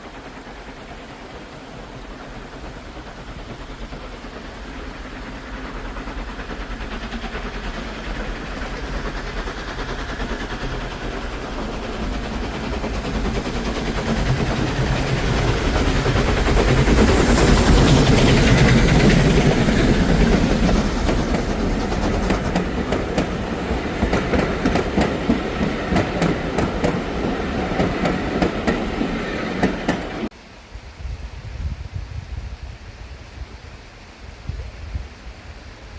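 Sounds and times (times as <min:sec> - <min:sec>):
train passing: 0:00.0 - 0:30.5
wheels clacking over rail joints: 0:02.2 - 0:30.3.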